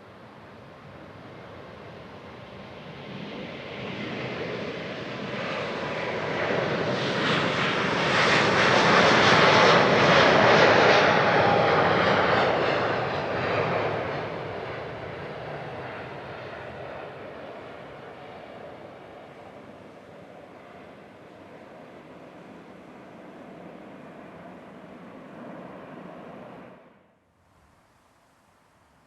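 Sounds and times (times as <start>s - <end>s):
jet airliner engines passing: 0.0s - 27.1s.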